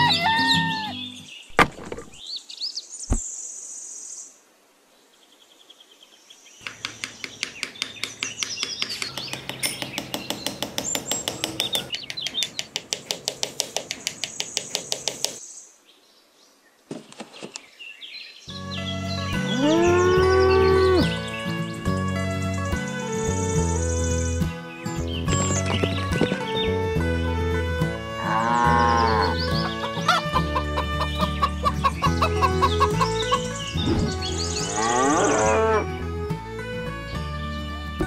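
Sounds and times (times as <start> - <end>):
small birds chirping: 0.0 - 4.4, 5.0 - 27.0, 27.6 - 36.0, 36.6 - 38.0
fast sharp clicks: 6.7 - 15.4.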